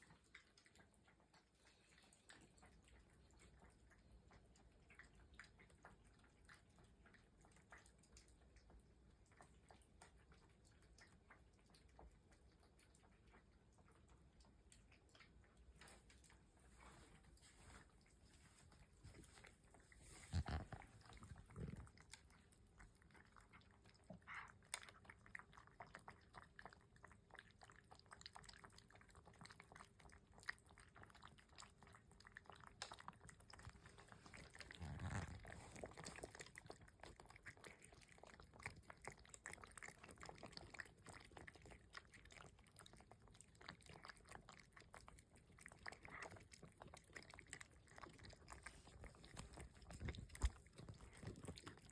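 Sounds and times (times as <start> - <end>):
cats chewing and crunching: 0.0 - 51.9.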